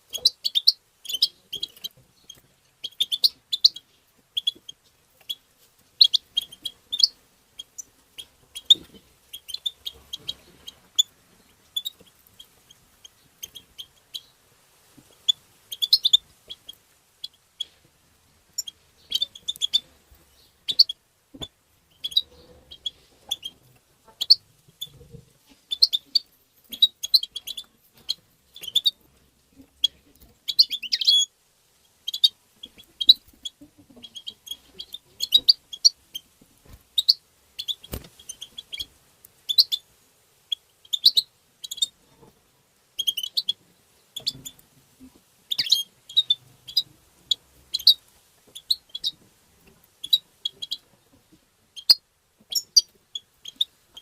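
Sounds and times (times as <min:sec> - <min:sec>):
goldfinch twittering: 0:45.5 - 0:46.8.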